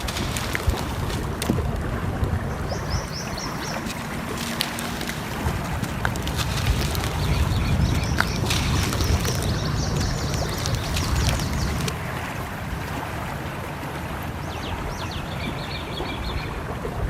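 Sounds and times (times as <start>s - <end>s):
bird calling: 0.0s - 12.0s, 14.3s - 16.9s
wood fire crackling: 0.0s - 12.0s
flowing stream: 0.0s - 17.0s.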